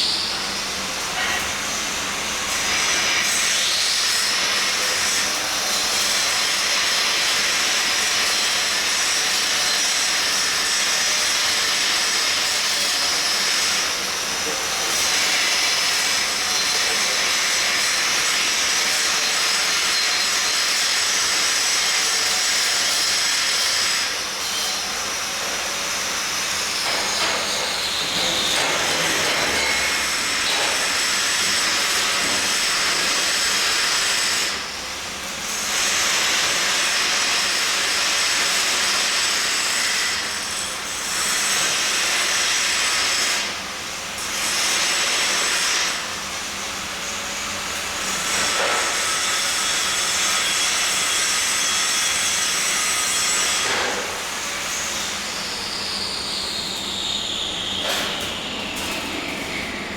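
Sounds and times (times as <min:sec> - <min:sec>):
welding arc hissing: 0:47.1 - 0:59.9.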